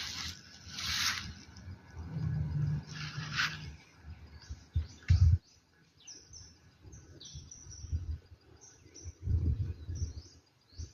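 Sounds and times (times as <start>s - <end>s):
birds chirping: 2.2s - 10.9s.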